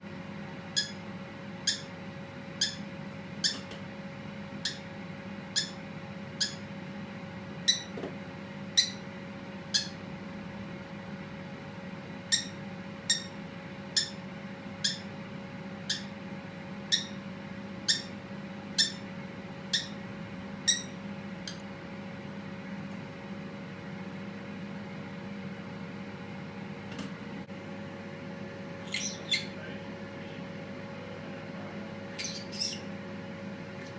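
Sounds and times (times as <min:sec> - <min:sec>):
parakeet chirping: 0:00.8 - 0:01.0, 0:01.6 - 0:01.9, 0:02.6 - 0:02.8, 0:04.6 - 0:04.8, 0:05.5 - 0:05.8, 0:06.4 - 0:06.6, 0:07.7 - 0:07.9, 0:08.8 - 0:09.0, 0:09.7 - 0:10.0, 0:12.3 - 0:13.3, 0:14.0 - 0:14.2, 0:14.8 - 0:15.1, 0:15.9 - 0:16.1, 0:16.9 - 0:17.2, 0:17.8 - 0:18.1, 0:18.8 - 0:19.0, 0:19.7 - 0:20.0, 0:20.7 - 0:21.0, 0:28.8 - 0:29.7, 0:32.1 - 0:33.0
steady low hum: 0:23.9 - 0:33.9.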